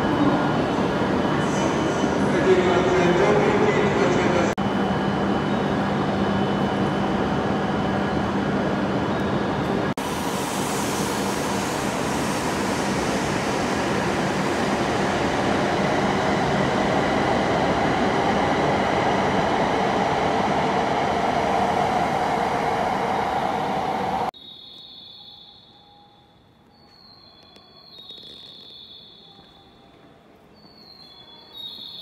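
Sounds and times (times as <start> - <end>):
train rushing past: 0.0 - 24.4.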